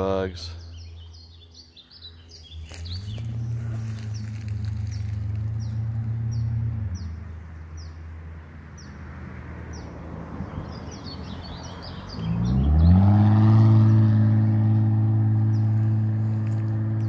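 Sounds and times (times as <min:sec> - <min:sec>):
vehicle engine drone: 0:00.0 - 0:17.0
small bird chirping: 0:00.6 - 0:08.0.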